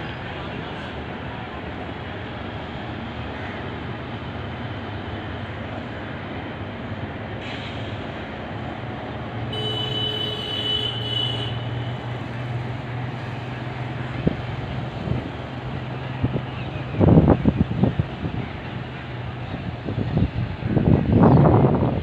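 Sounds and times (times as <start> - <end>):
train coaches rumbling on rails: 0.0 - 22.0
train horn: 9.5 - 12.0.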